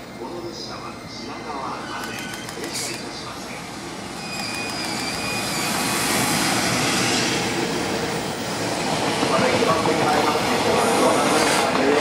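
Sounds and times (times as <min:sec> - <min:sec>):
electric locomotive whine: 0:00.0 - 0:12.0.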